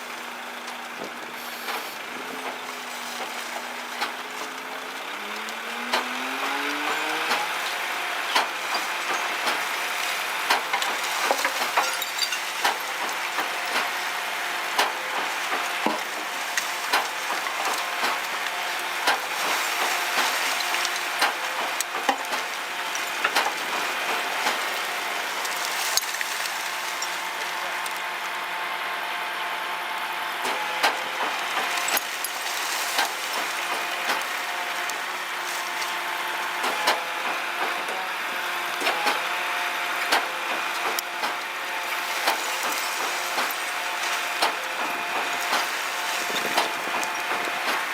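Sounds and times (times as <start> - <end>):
hydraulic trailer mechanical hum: 0.1 - 47.9.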